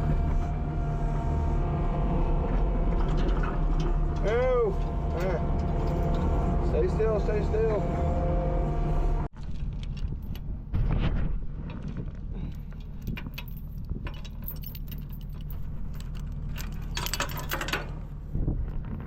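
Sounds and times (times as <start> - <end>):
diesel engine running: 0.0 - 9.3
metallic clinks and rattles: 11.7 - 18.2
metal jangling: 12.5 - 18.2.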